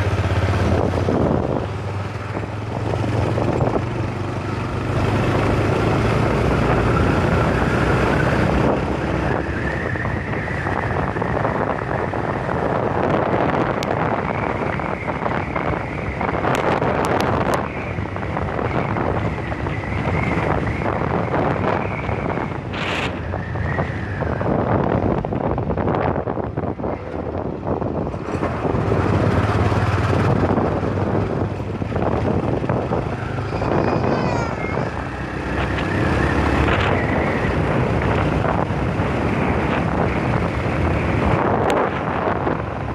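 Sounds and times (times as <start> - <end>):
motorcycle running: 0.0 - 42.9
road traffic: 0.0 - 42.9
wind buffeting microphone: 0.0 - 42.9.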